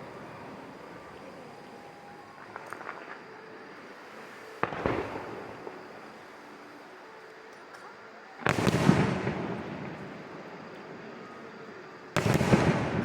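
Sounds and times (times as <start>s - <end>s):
fireworks crackling: 0.0s - 13.0s
firework bang: 12.2s - 13.0s.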